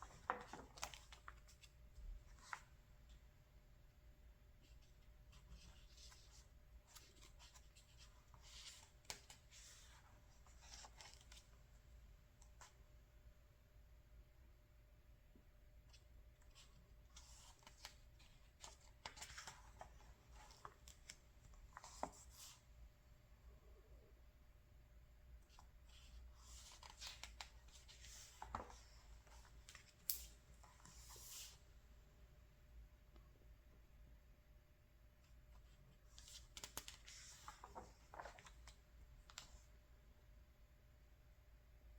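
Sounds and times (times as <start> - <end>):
paper pages rustling: 0.0 - 2.8, 4.7 - 11.6, 15.9 - 22.6, 25.5 - 31.6, 35.6 - 39.7.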